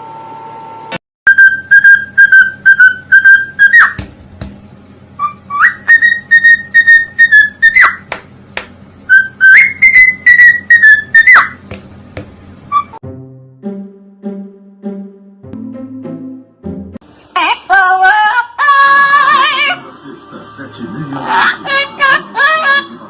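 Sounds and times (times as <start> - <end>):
parrot whistling a tune: 1.3 - 4.0, 5.2 - 8.0, 9.1 - 11.6, 12.7 - 13.0.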